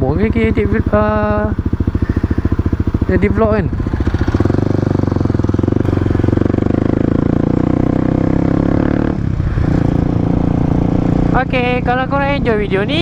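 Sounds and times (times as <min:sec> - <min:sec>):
motorcycle engine under throttle: 0:00.0 - 0:13.0.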